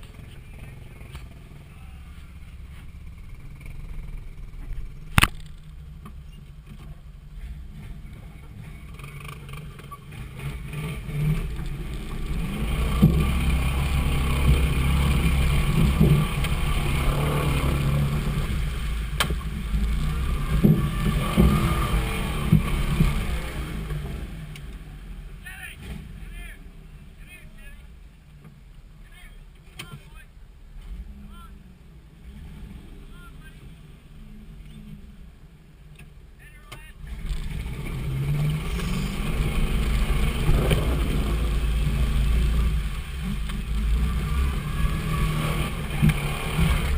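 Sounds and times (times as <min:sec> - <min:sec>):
vehicle engine rumbling: 0:00.0 - 0:46.9.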